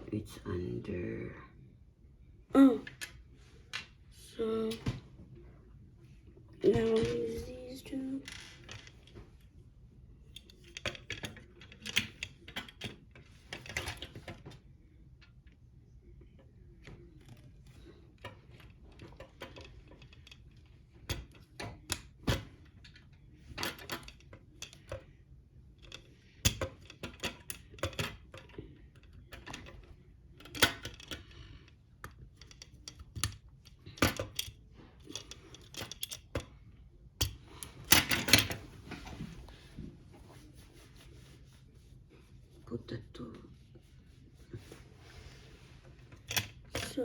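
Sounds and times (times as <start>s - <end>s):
plastic parts clicking together: 10.4s - 14.5s, 25.8s - 31.4s, 32.0s - 36.6s.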